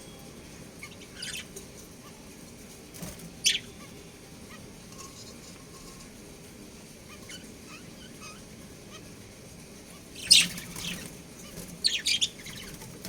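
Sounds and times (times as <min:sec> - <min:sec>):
budgerigars chirping: 0:00.8 - 0:01.5, 0:03.4 - 0:03.9, 0:10.0 - 0:12.8.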